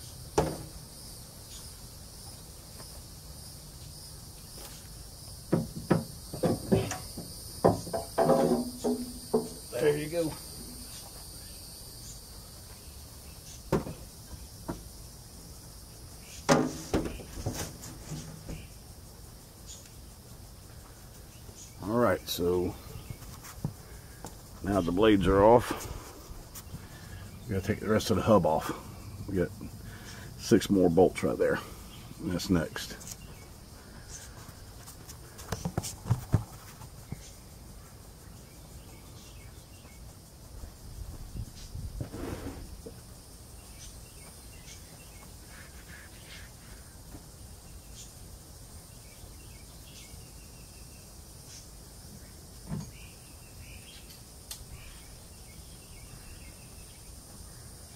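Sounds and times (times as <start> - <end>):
insects chirring: 0.0 - 57.9
knocks and clunks of metal parts: 0.4 - 0.8, 5.5 - 9.6, 16.5 - 18.6.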